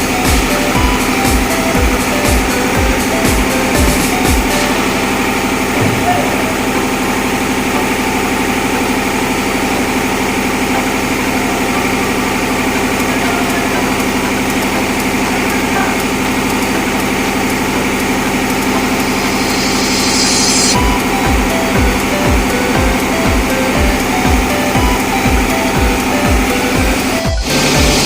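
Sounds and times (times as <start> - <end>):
diesel engine room drone: 0.0 - 28.0.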